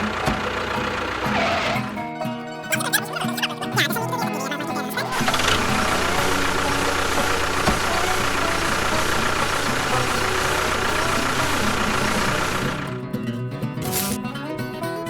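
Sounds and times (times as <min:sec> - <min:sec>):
motor running steadily: 0:00.0 - 0:02.0, 0:05.0 - 0:13.2
faint steady whine: 0:05.2 - 0:13.0.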